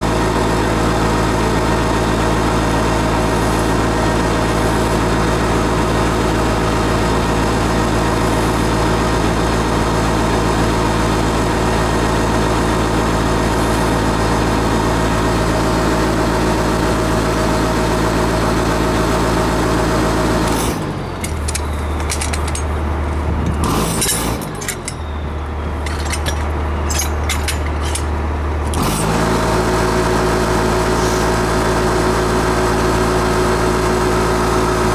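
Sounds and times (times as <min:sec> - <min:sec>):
engine idling: 0:16.9 - 0:34.9
knocks and clatter: 0:21.2 - 0:28.9.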